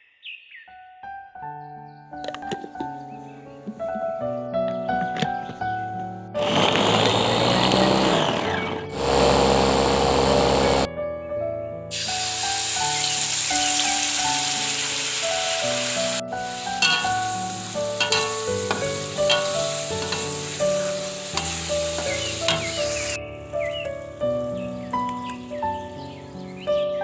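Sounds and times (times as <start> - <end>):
background music with simple melody: 0.5 - 27.0
food sizzling in hot oil: 11.9 - 23.2.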